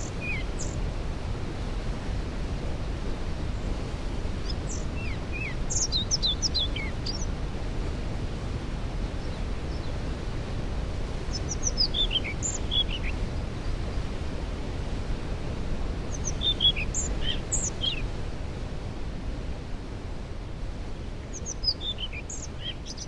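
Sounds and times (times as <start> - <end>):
songbird chirping: 11.3 - 13.2, 16.1 - 18.0.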